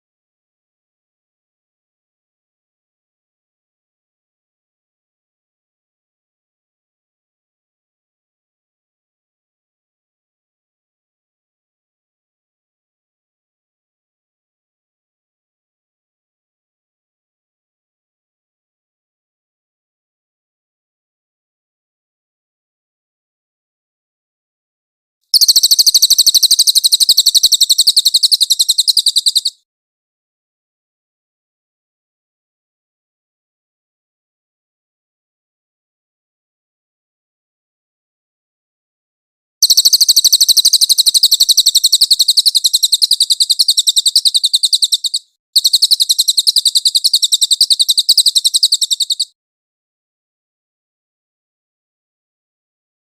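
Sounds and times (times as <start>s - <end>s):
songbird high-pitched trill: 25.4s - 29.6s, 39.6s - 49.4s.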